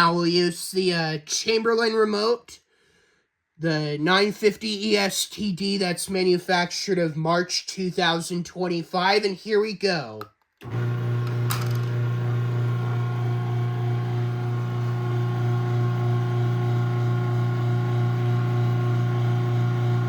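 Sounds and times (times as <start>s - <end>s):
garage door opener motor humming: 10.6s - 20.0s.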